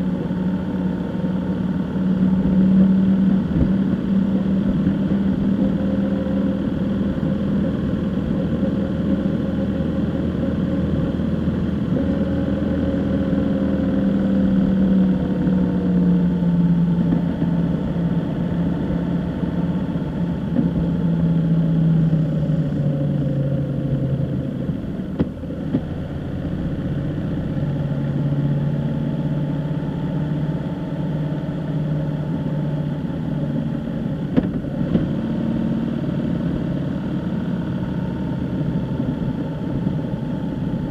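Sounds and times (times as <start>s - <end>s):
road noise: 0.0s - 40.9s
vehicle engine running: 0.0s - 40.9s.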